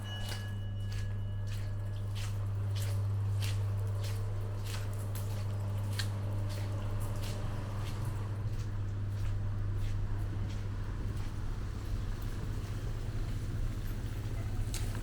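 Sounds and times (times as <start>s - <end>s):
footsteps on wet paving: 0.2s - 13.9s.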